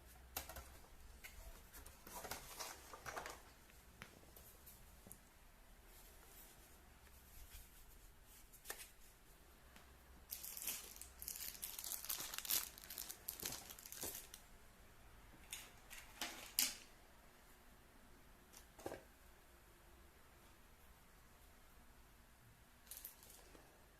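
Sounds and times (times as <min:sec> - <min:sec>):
packaging crinkling and rustling: 0:01.4 - 0:03.7, 0:10.3 - 0:14.4.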